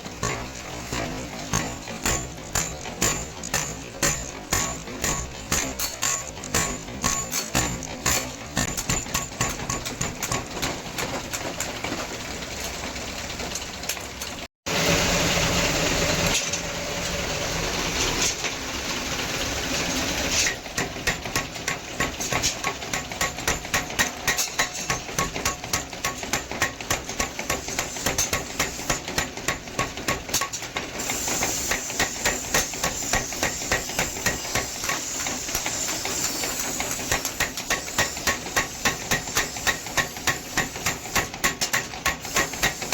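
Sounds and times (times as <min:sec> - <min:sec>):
hammer striking iron on anvil: 0:00.0 - 0:11.7, 0:20.4 - 0:42.9.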